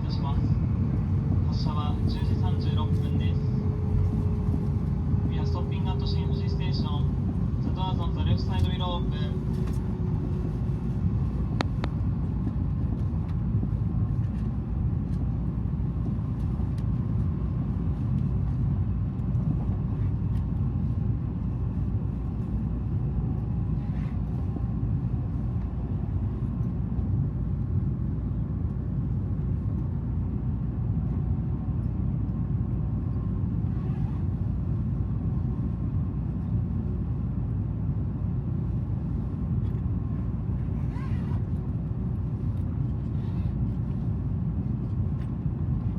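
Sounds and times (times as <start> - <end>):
train cabin rumble: 0.0 - 45.9.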